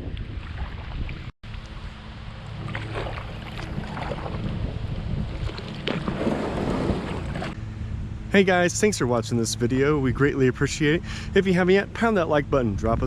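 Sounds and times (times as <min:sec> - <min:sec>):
wind buffeting microphone: 0:00.0 - 0:01.3, 0:02.6 - 0:08.2
water sloshing: 0:00.2 - 0:07.6.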